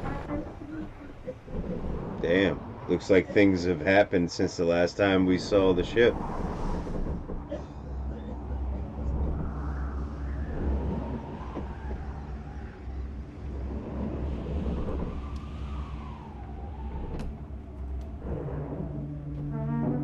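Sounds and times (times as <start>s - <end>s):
deep rumble: 0.0s - 20.0s
low held horn tones: 7.2s - 20.0s
wailing siren-like tone: 8.5s - 13.8s, 14.4s - 20.0s.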